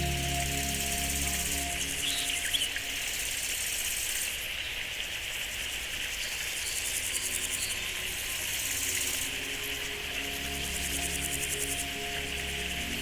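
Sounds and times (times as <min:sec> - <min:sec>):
high-pitched pulsing trill: 0:00.0 - 0:03.6
insects chirping chorus: 0:00.0 - 0:13.0.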